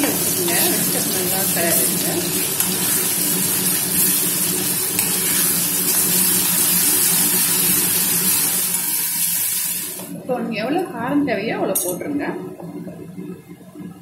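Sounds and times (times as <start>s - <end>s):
paste sizzling in hot oil: 0.0s - 10.1s
steady low hum: 10.1s - 14.0s.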